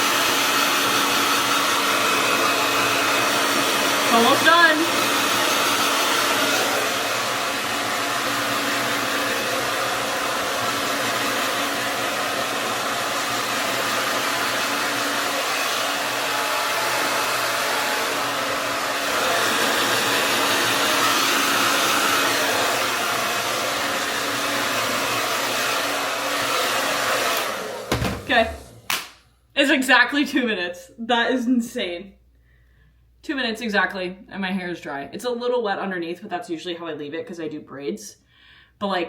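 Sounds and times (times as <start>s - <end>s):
hair dryer blowing: 0.0s - 29.2s.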